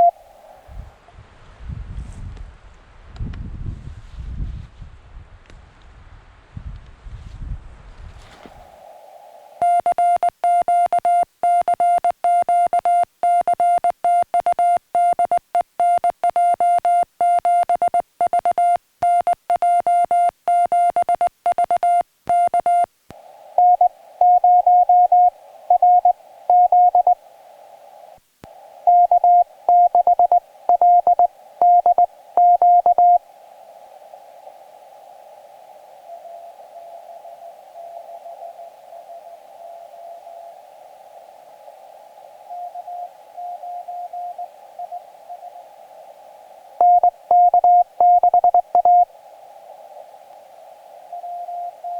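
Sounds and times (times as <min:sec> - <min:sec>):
morse code sidetone: 0:00.0 - 0:00.2, 0:09.6 - 0:22.9, 0:23.6 - 0:27.2, 0:28.8 - 0:33.3, 0:42.4 - 0:45.7, 0:46.8 - 0:49.1, 0:51.0 - 0:51.9
morse code reply through static: 0:00.0 - 0:00.7, 0:09.2 - 0:51.9
radio receiver hiss: 0:00.0 - 0:01.0, 0:08.2 - 0:51.9.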